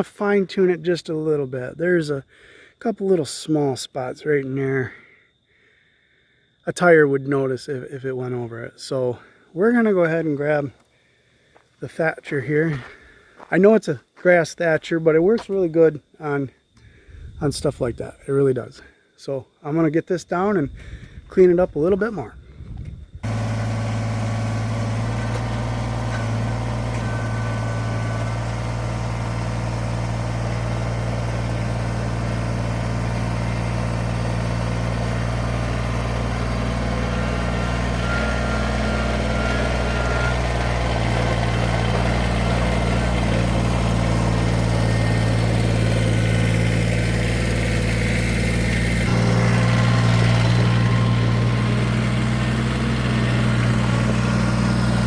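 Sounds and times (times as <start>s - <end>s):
grass thatcher on gravel: 11.6s - 15.8s, 23.2s - 55.0s
tractor diesel engine running: 20.6s - 55.0s.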